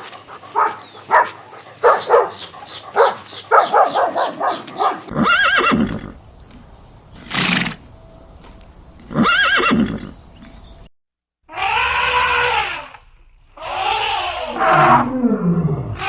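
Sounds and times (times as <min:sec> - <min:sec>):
horses neighing: 0:03.8 - 0:06.2, 0:07.2 - 0:07.8, 0:09.1 - 0:10.2, 0:11.5 - 0:15.1.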